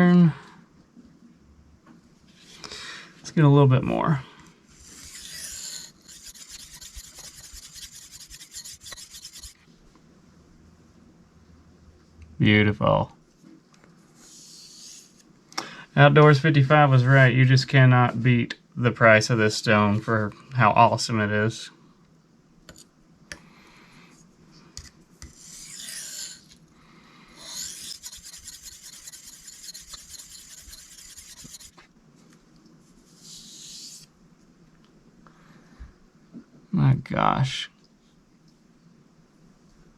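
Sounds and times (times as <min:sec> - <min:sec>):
knife scraping on sharpening stone: 0:04.9 - 0:09.6, 0:25.2 - 0:26.6, 0:27.4 - 0:31.7.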